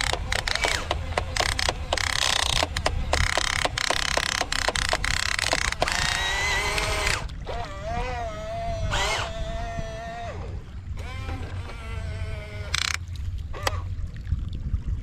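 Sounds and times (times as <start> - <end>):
small electric motors whining: 0.0 - 13.9.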